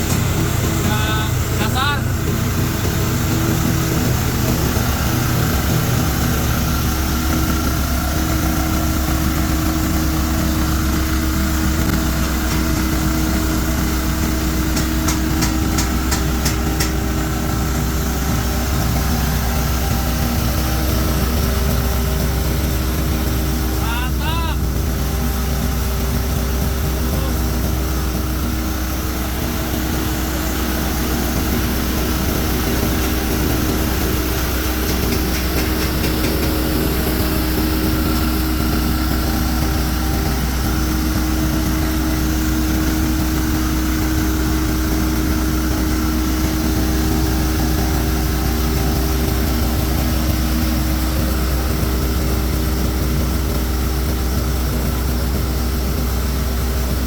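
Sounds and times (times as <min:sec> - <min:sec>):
diesel engine drone: 0:00.0 - 0:57.0
grinding mill rushing noise: 0:00.0 - 0:57.0.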